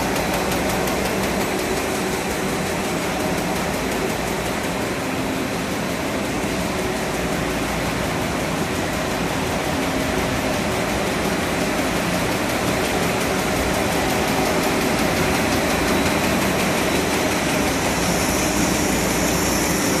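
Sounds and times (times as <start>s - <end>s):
paper machine running: 0.0s - 20.0s.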